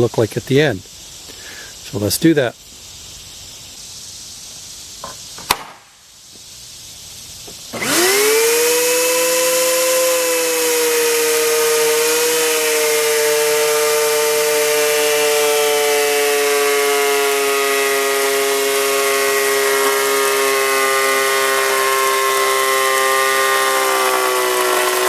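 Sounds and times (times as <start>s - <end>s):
planer motor running: 7.8s - 25.0s.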